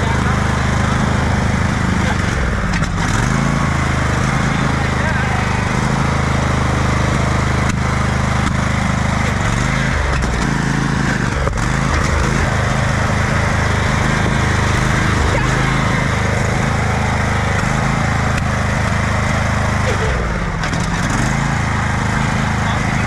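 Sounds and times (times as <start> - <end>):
riding lawn mower engine running: 0.0 - 23.0.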